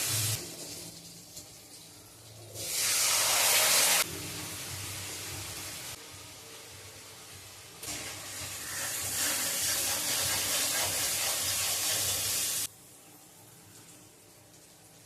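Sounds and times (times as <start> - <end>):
food sizzling in hot oil: 0.0 - 12.7.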